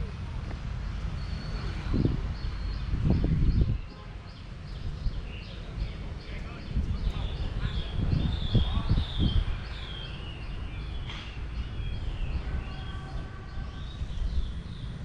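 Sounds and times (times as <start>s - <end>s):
small birds chirping: 0.9s - 15.0s.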